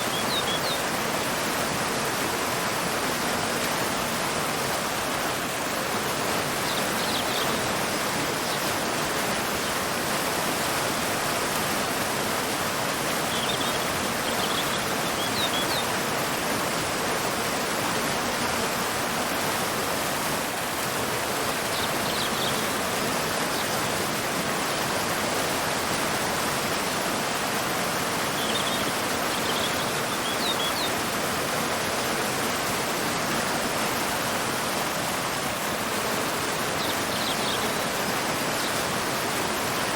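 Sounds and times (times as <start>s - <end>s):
waterfall and river roaring: 0.0s - 39.9s
faint bird chirps: 28.3s - 30.9s.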